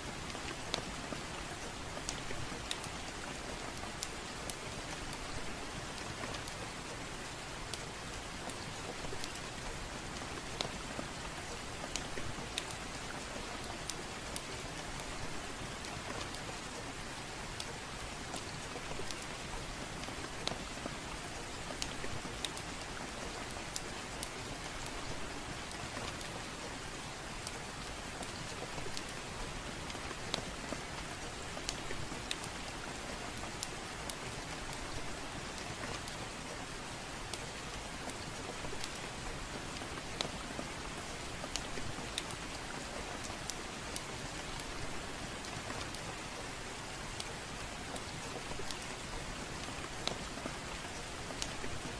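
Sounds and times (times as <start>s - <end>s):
soft rain hiss: 0.0s - 51.9s
wood fire crackling and popping: 27.3s - 36.4s, 37.3s - 40.4s, 41.0s - 42.5s.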